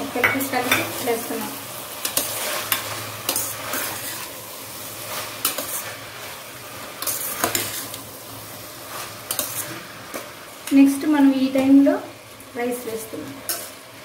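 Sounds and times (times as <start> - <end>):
vegetables sizzling: 0.0 - 14.0
spoon scraping metal pot: 7.0 - 8.0.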